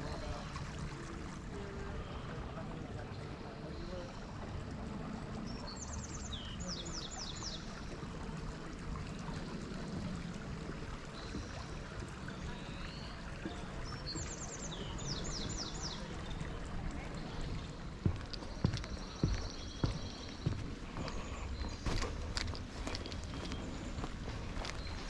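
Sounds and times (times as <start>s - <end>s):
songbird singing: 5.4s - 7.9s, 11.2s - 25.0s.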